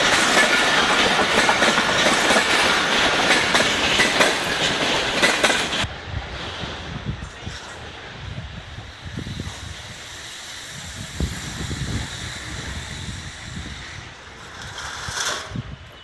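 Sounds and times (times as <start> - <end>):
passing train rumble: 0.0 - 16.0
wind buffeting microphone: 0.0 - 16.0
steady hiss: 6.4 - 15.2.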